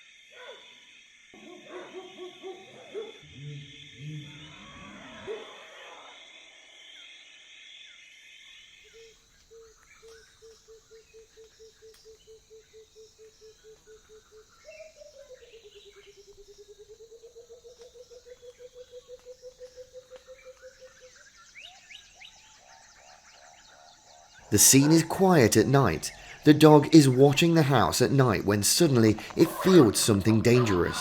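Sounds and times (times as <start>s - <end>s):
high insect drone: 0.0s - 22.4s
night animal calling: 0.3s - 7.3s, 8.8s - 31.0s.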